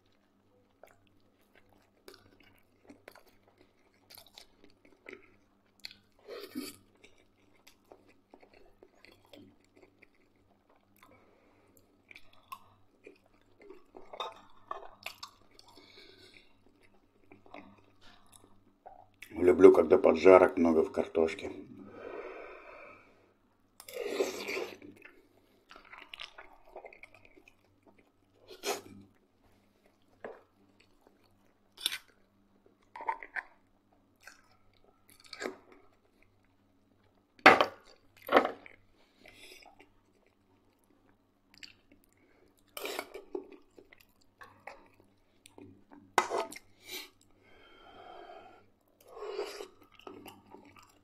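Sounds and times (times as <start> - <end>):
crunchy chewing: 0.0 - 19.3, 49.1 - 51.0.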